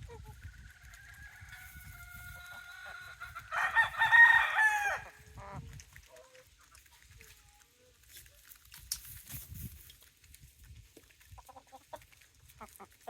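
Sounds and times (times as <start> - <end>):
rooster crowing: 3.5 - 5.2.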